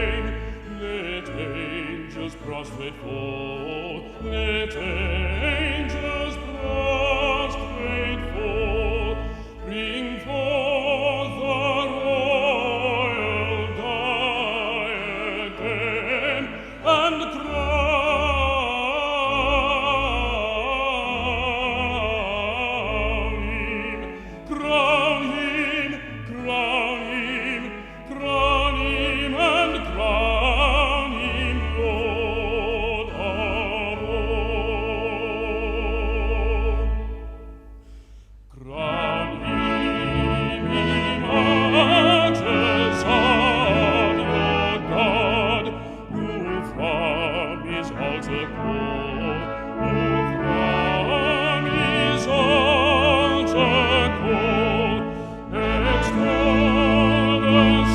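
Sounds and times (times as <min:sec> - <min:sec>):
man singing a hymn: 0:00.0 - 0:37.4, 0:38.5 - 0:57.9
brass ensemble playing: 0:03.8 - 0:26.5, 0:36.2 - 0:57.9.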